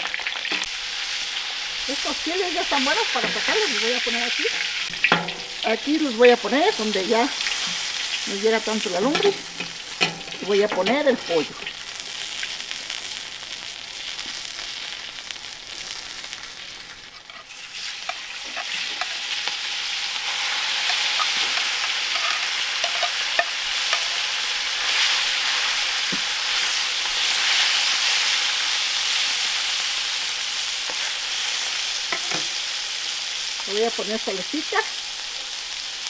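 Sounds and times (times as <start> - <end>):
chicken sizzling in oil: 0.0 - 36.0
metal spatula scraping pan: 17.1 - 19.5, 20.2 - 25.1.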